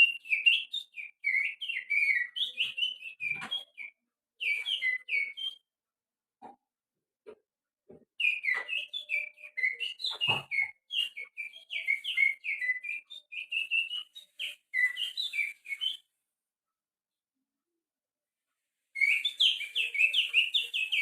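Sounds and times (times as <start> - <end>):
person whistling bird song: 0.0 - 5.6, 8.2 - 16.0, 19.0 - 21.0.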